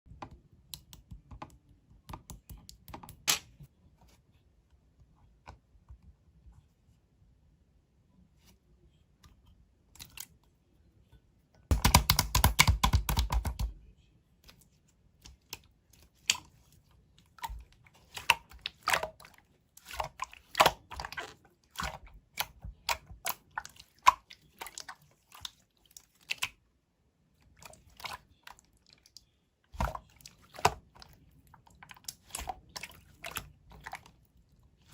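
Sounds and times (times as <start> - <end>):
wet clicks and pops: 11.7 - 13.7.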